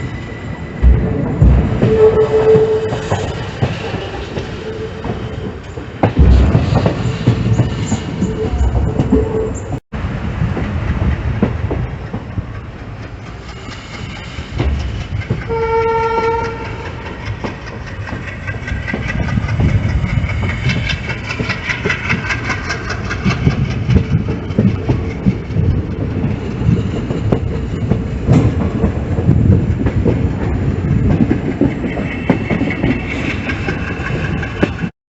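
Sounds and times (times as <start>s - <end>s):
train rumble with wheel clatter: 0.0s - 34.9s
train horn: 0.9s - 3.4s, 15.5s - 17.0s.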